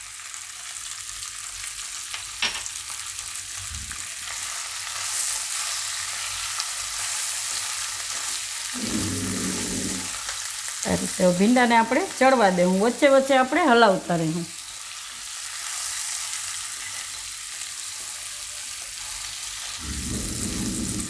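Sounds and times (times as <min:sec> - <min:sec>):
okra sizzling in oil: 0:00.0 - 0:21.0
spatula stirring in pan: 0:04.9 - 0:10.4.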